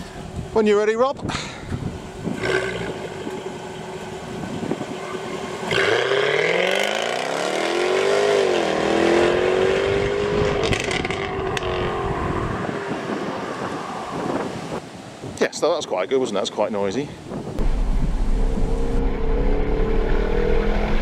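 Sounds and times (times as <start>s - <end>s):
sports car engine launching: 17.6s - 21.0s.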